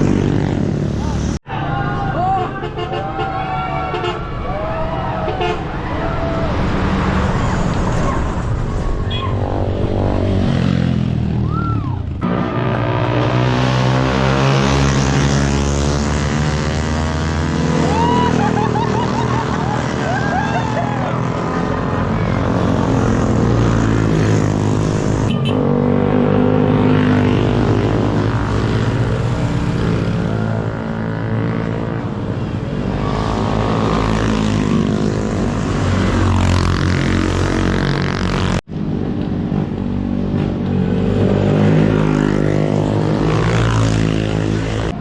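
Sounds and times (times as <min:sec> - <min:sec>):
motorcycle engine revving: 0:06.9 - 0:18.6.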